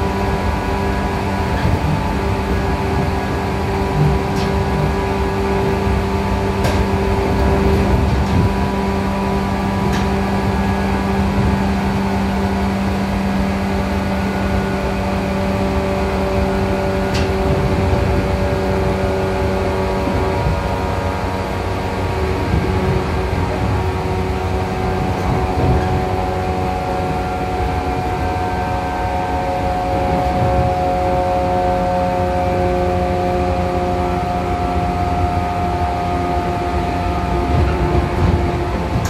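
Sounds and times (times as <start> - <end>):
train motor droning hum: 0.0 - 39.0
wheels rumbling on rail: 0.0 - 39.0.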